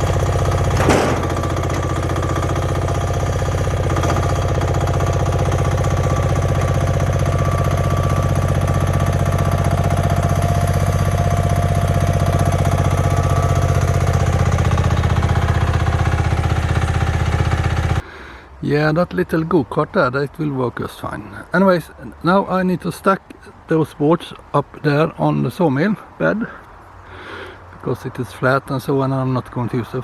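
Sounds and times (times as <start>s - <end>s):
engine idling: 0.0s - 18.0s
sharp metal clank: 0.6s - 3.1s.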